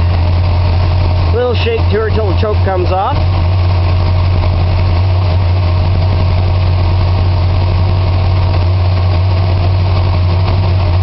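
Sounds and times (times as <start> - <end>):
car engine fast idling: 0.0 - 11.0.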